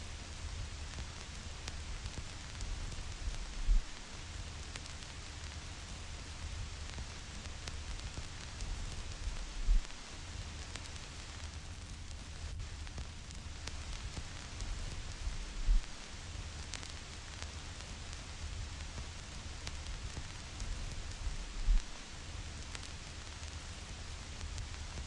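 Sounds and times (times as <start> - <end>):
vinyl surface hiss: 0.0 - 25.0
low rumble: 3.2 - 4.0, 9.3 - 9.9, 15.1 - 15.9, 21.1 - 21.9.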